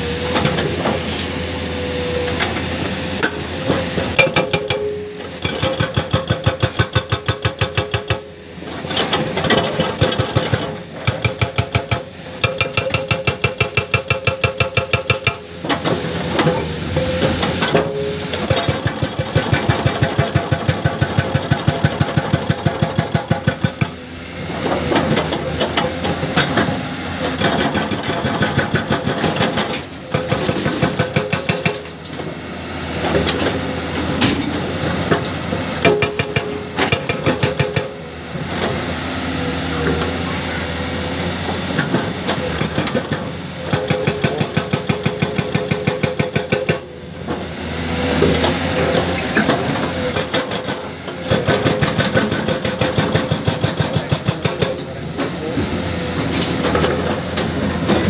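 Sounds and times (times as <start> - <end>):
hydraulic breaker hammering rock: 2.3 - 39.1, 39.7 - 58.0.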